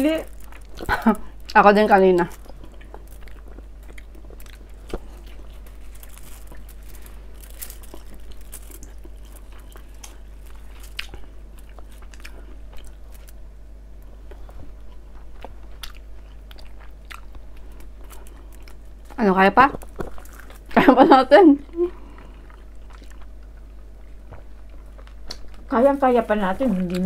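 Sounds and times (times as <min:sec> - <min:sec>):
people chewing food: 0:00.0 - 0:27.0
steady low hum: 0:00.0 - 0:27.0
soft crunches: 0:02.3 - 0:13.4.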